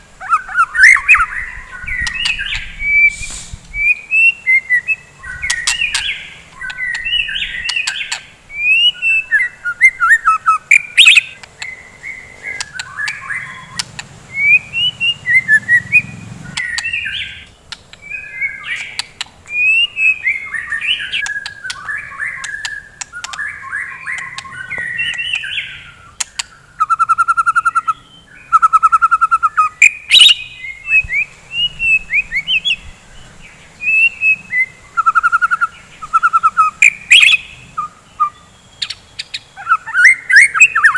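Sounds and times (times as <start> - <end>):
bird singing whistled phrases: 0.2 - 32.8, 33.8 - 40.9
bird sharp clicks: 1.9 - 3.4, 5.4 - 8.3, 10.7 - 11.8, 12.5 - 15.6, 16.5 - 25.6, 26.2 - 27.0
bird rattling trills: 5.2 - 26.5.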